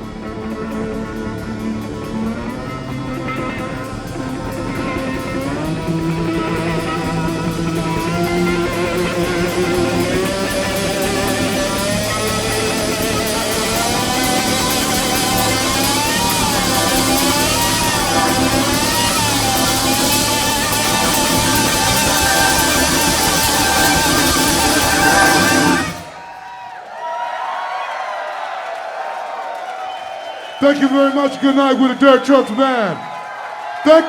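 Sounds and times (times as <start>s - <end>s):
bass and drums: 0.0s - 26.2s
electric slide guitar: 0.0s - 26.2s.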